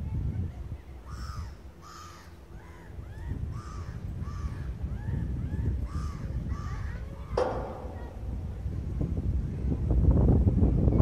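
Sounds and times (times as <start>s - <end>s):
birds calling: 0.6s - 9.7s
low rumble: 7.4s - 11.0s.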